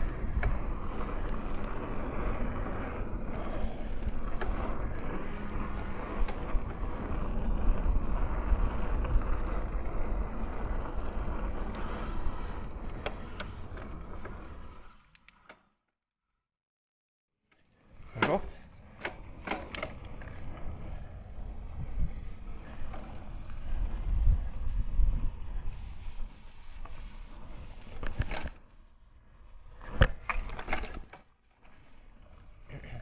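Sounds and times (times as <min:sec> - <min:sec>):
wind buffeting microphone: 0:00.0 - 0:13.8, 0:20.0 - 0:28.3
bike tyres rumbling: 0:00.0 - 0:15.2, 0:17.7 - 0:33.0
bike clicks and rattles: 0:00.0 - 0:15.6, 0:18.0 - 0:21.0, 0:29.8 - 0:32.8.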